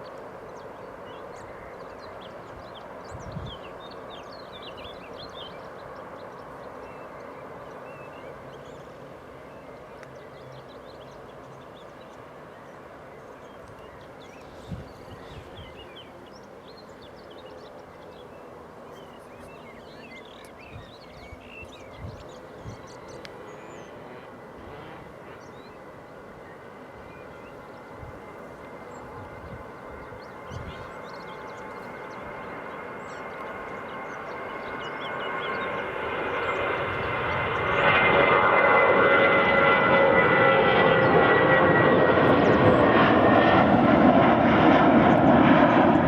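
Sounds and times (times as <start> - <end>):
small birds chirping: 0.0 - 24.0, 28.7 - 38.1
airliner engines whining: 0.0 - 46.0.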